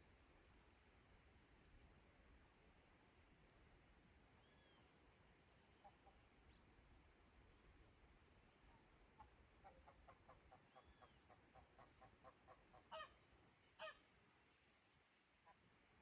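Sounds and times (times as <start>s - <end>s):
distant poultry calling: 9.2s - 13.2s, 13.8s - 14.0s.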